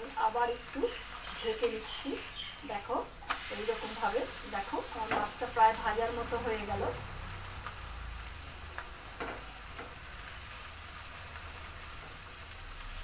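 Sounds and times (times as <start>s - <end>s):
food frying in oil: 0.0s - 13.0s.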